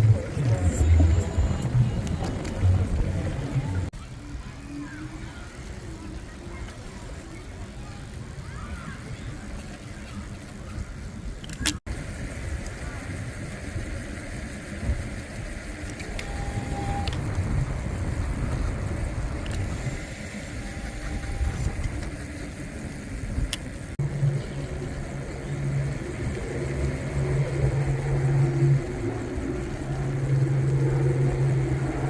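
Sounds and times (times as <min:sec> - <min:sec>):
low rumbling traffic: 0:00.0 - 0:32.0
steady low hum: 0:00.0 - 0:32.0
wind on microphone: 0:14.7 - 0:32.0.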